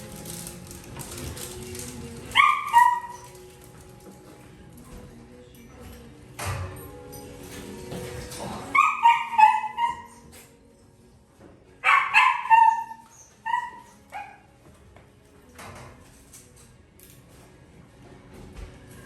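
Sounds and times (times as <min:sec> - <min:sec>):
puppy yelping and whining: 0:08.7 - 0:10.3, 0:11.8 - 0:14.4.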